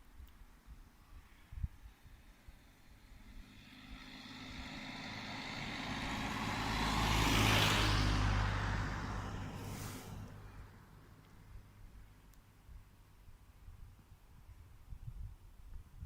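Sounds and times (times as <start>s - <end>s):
motor vehicle passing by: 2.2s - 12.0s.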